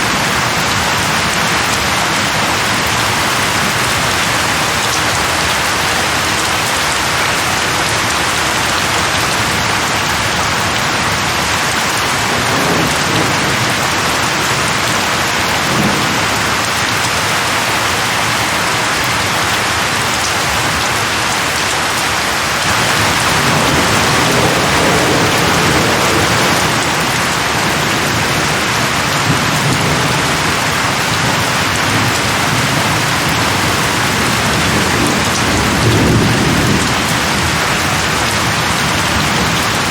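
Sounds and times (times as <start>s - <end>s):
heavy rain falling: 0.0s - 39.9s
thunder rolling: 22.6s - 39.6s.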